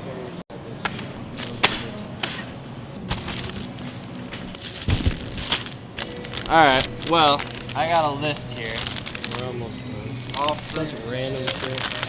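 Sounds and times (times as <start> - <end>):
supermarket background hum: 0.0 - 12.0.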